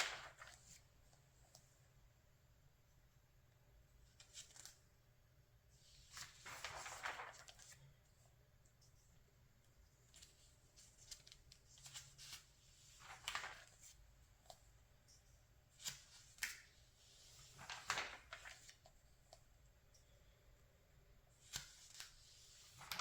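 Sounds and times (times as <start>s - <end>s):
magazine pages turning: 0.0s - 0.9s, 4.1s - 4.8s, 5.9s - 8.0s, 10.1s - 14.6s, 15.8s - 19.4s, 21.4s - 23.0s.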